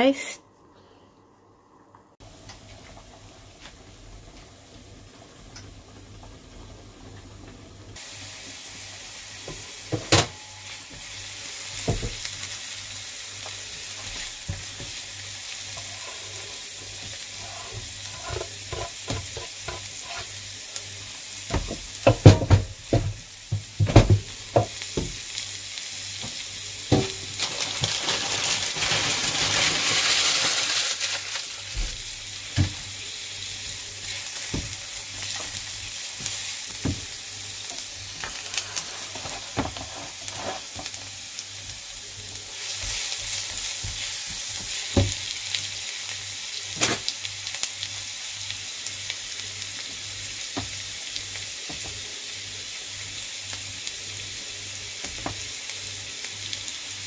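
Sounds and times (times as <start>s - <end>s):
onion and garlic sizzling in pan: 2.2s - 57.0s
spatula tapping and scraping pan: 17.0s - 20.3s, 21.5s - 25.2s.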